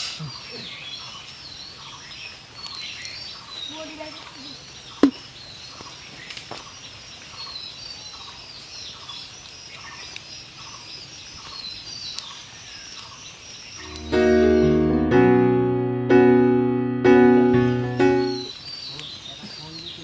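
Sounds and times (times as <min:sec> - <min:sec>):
small birds chirping: 0:00.0 - 0:15.1, 0:17.2 - 0:20.0
keyboard music: 0:13.8 - 0:18.5.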